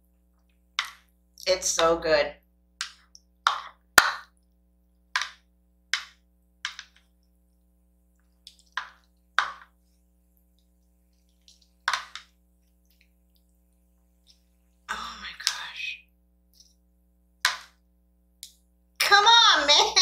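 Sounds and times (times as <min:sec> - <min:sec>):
wet eating smacks and clicks: 0:08.2 - 0:09.2.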